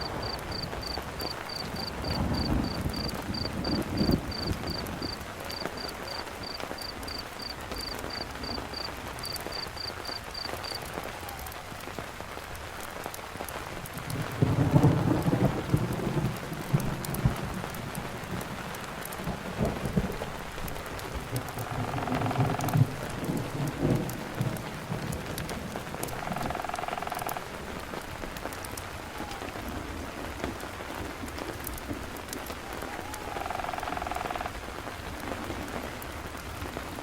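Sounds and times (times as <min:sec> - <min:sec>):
cricket chirping: 0:00.0 - 0:10.8, 0:21.4 - 0:22.8, 0:26.0 - 0:27.4, 0:33.3 - 0:34.5
thunder rumbling: 0:00.0 - 0:11.8, 0:13.6 - 0:28.2
rain falling: 0:00.0 - 0:37.0.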